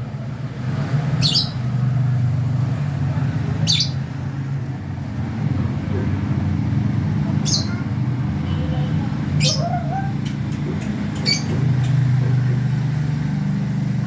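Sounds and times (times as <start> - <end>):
lovebirds chirping: 3.6 - 4.1, 7.2 - 7.9, 8.5 - 12.1.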